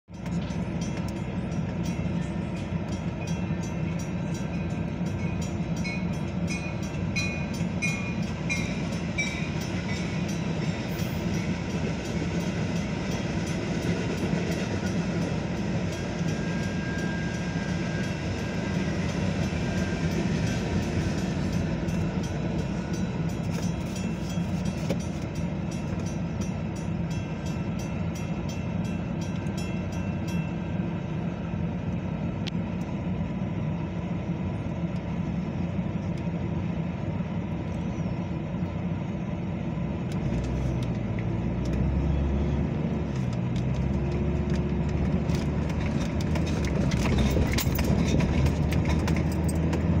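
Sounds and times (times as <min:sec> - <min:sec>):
commuter train passing: 0:00.1 - 0:50.0
wheels clicking over rails: 0:43.1 - 0:50.0.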